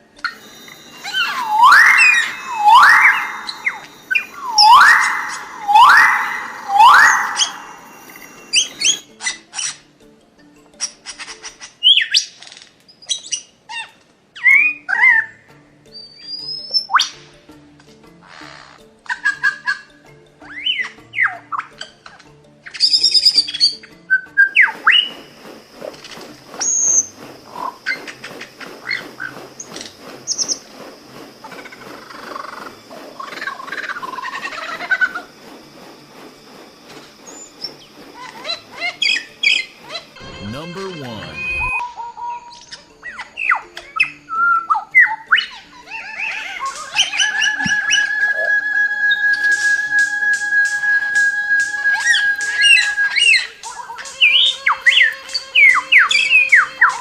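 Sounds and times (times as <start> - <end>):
soft background music: 0.0 - 57.0
bird whistling: 0.3 - 9.1, 22.8 - 30.7, 37.0 - 40.2, 46.2 - 57.0.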